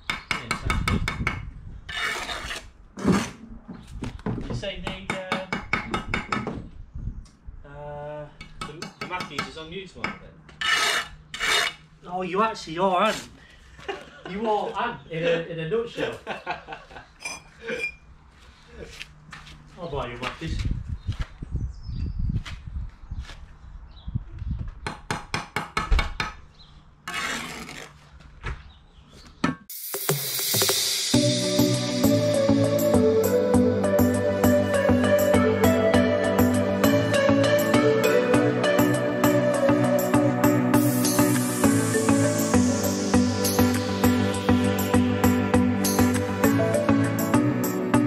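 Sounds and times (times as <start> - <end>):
trowel scraping and tapping bricks: 0.1 - 3.4, 8.4 - 11.8
trowel scraping brick: 1.9 - 3.5, 10.5 - 11.8, 27.0 - 28.2.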